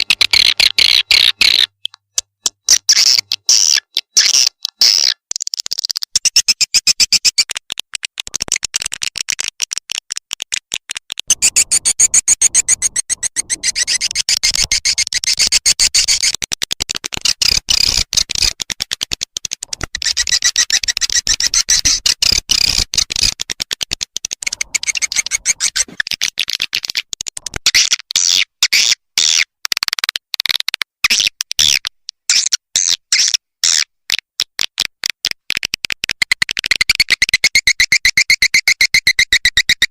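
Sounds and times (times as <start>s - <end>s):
swiftlets twittering chirps: 11.3s - 16.3s, 24.4s - 26.0s.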